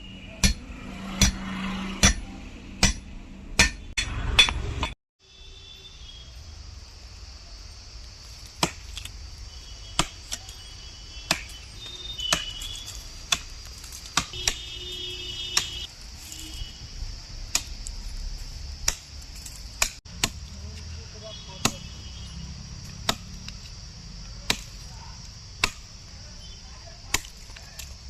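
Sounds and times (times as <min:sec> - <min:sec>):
hand tool strikes: 0:00.4 - 0:00.6, 0:01.2 - 0:05.0, 0:12.3 - 0:12.7, 0:13.3 - 0:14.6, 0:19.8 - 0:20.8, 0:21.6 - 0:21.9.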